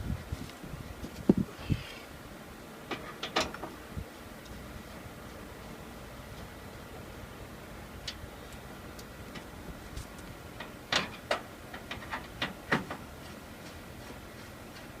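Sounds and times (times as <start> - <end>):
clicks and knocks of tools: 2.9 - 3.8, 8.0 - 13.0.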